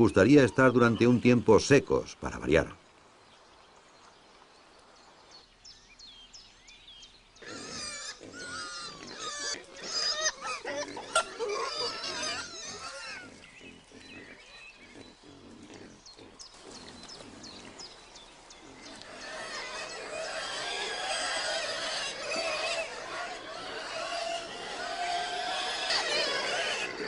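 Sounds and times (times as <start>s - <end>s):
wild boar grunting and squealing: 7.4s - 27.0s.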